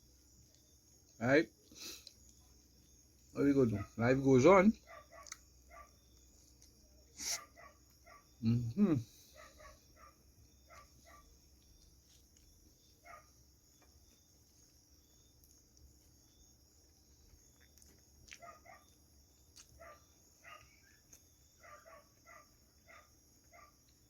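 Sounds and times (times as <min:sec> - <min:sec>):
insects chirring: 0:00.0 - 0:24.0
dog barking faintly: 0:03.6 - 0:04.1, 0:04.8 - 0:06.0, 0:07.1 - 0:11.4, 0:13.0 - 0:13.4, 0:18.2 - 0:19.0, 0:19.8 - 0:23.9.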